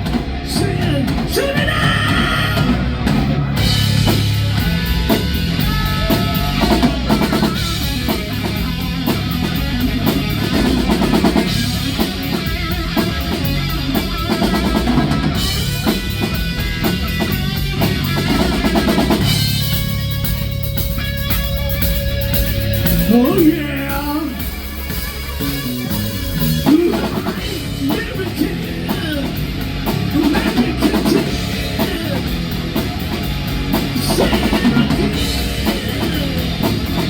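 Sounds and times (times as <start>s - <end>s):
bass drum beat: 0.0s - 37.0s
rock band playing: 0.0s - 37.0s.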